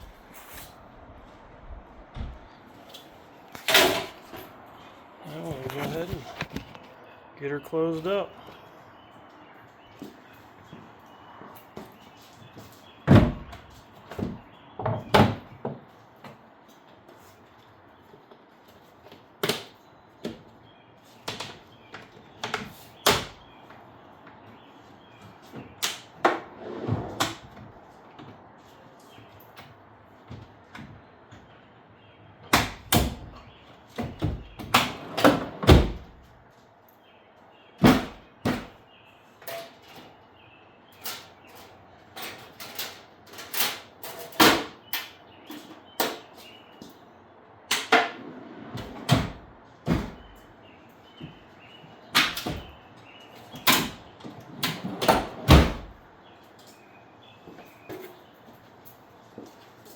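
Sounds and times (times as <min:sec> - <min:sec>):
panels and lids clunking shut: 0:03.6 - 0:04.5, 0:47.7 - 0:50.4, 0:53.5 - 0:56.0.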